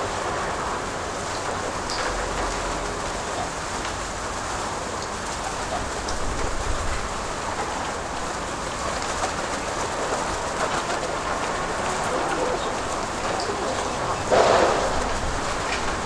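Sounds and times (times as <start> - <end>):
rain pattering: 0.0 - 16.0
wind rumble on microphone: 5.6 - 16.0.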